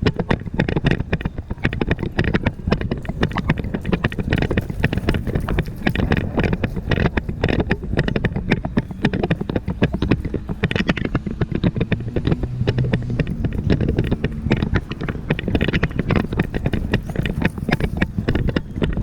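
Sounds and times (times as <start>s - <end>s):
hoofbeats: 0.0s - 19.0s
jostling gear: 0.0s - 19.0s
wind on microphone: 0.0s - 19.0s.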